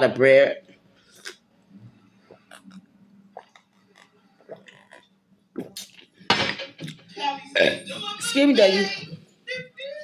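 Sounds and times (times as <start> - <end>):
person chewing a sandwich: 0.7 - 6.2
mouth clicks and smacks: 2.3 - 6.1.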